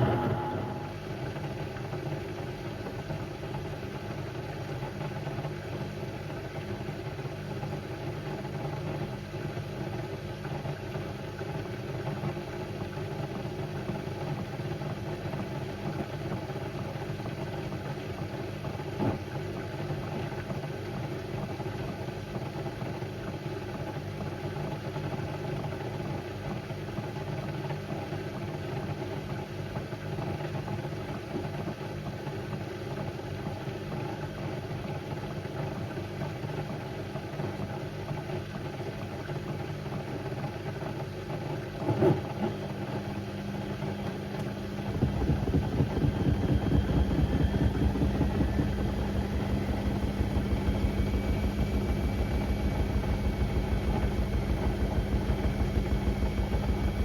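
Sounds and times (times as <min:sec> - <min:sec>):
pulsing rumble: 0:00.0 - 0:01.1, 0:44.8 - 0:57.0
washing machine motor hum: 0:00.0 - 0:57.0.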